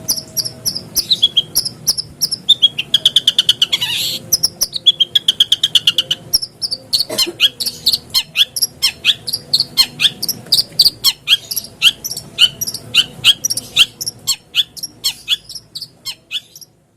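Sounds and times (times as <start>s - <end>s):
shrike song rattle and chirps: 0.0s - 16.7s.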